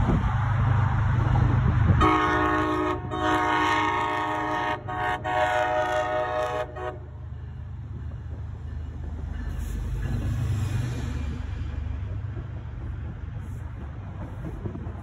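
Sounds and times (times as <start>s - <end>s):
train horn chord: 2.0s - 7.2s.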